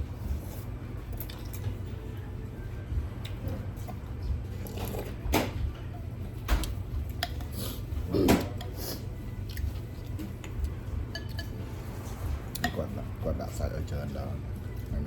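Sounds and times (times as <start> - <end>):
steady low hum: 0.0 - 15.0
dishes and cutlery clattering: 11.1 - 11.6.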